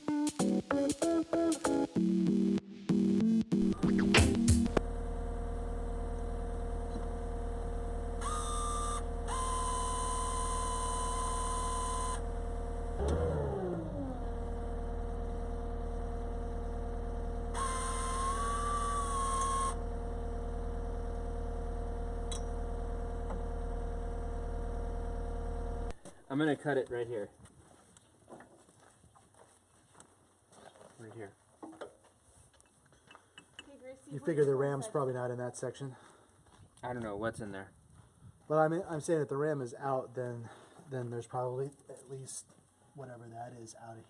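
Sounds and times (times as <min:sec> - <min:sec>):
short falling whine: 0:02.2 - 0:26.0
mechanical hum: 0:03.6 - 0:26.0
high whine with hiss: 0:17.5 - 0:19.8.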